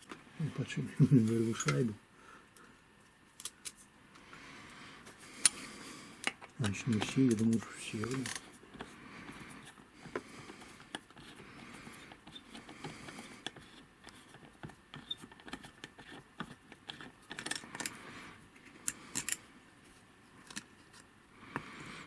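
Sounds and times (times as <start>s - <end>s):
metallic clicks and taps of tools: 1.3s - 1.8s.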